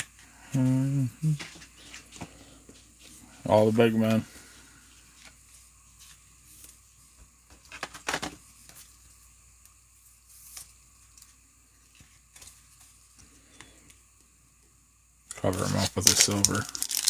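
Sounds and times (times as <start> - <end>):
wrappers rustling: 15.6 - 17.0.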